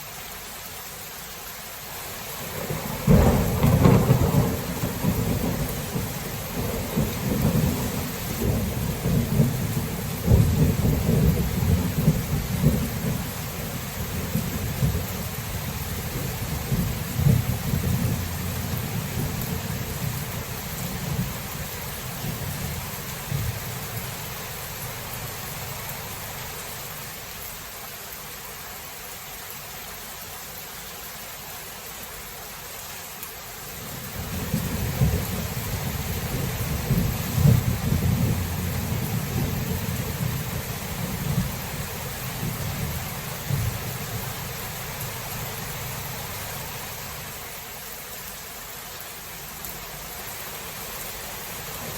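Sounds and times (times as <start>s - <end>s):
steady rain: 0.0s - 51.9s
rolling thunder: 2.5s - 24.0s, 34.2s - 44.3s.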